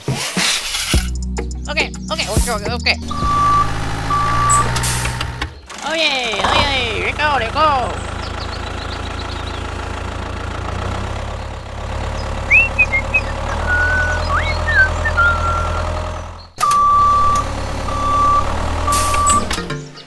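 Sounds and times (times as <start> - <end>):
small engine running: 2.2 - 19.6
reversing alarm beeps: 3.0 - 4.8, 12.5 - 15.8, 16.6 - 19.6.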